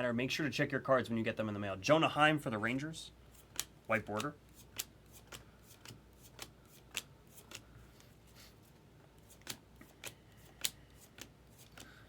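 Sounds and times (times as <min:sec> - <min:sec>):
cards flipped by hand: 0:03.3 - 0:12.0.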